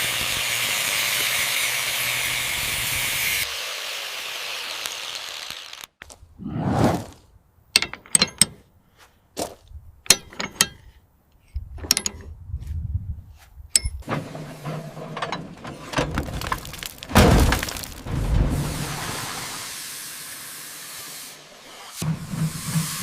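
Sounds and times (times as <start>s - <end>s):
scraping and knocking: 13.9s - 19.1s
heavy thud: 16.0s - 18.8s.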